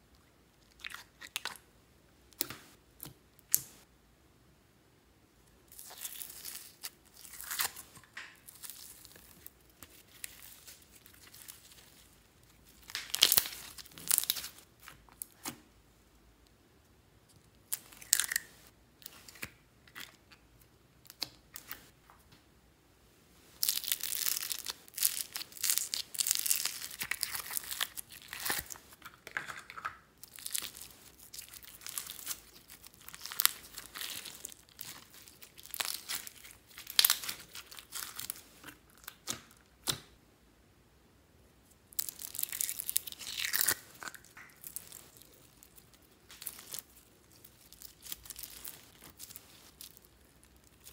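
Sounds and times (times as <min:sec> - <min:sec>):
slime crackling and squelching: 0:00.6 - 0:01.7, 0:05.7 - 0:15.6, 0:23.5 - 0:40.1, 0:41.9 - 0:50.9.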